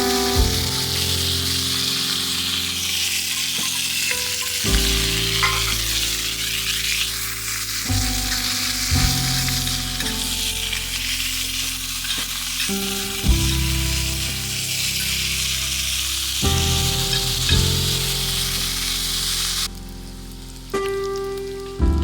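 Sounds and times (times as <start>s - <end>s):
background music chords: 0.0s - 22.0s
food sizzling in frying: 0.0s - 22.0s.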